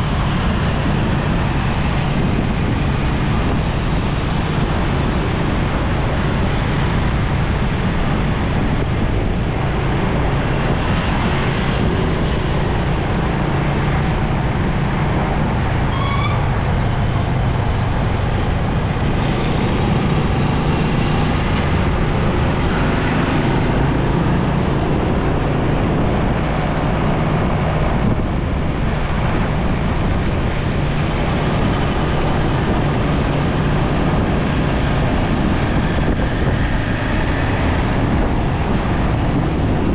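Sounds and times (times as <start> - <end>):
road and traffic noise: 0.0 - 39.9
motorcycle engine running: 17.0 - 27.0.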